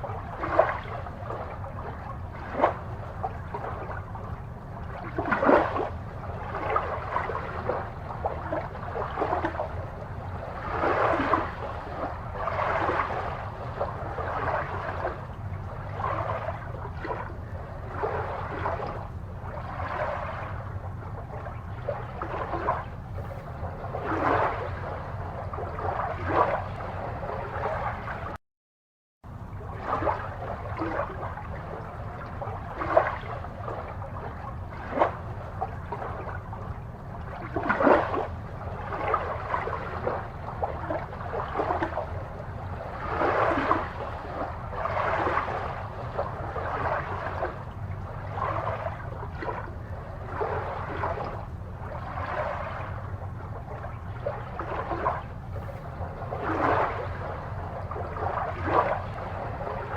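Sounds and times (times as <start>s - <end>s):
aquarium water bubbling: 0.0s - 28.4s, 29.3s - 59.9s
steady low hum: 0.0s - 28.4s, 29.3s - 59.9s.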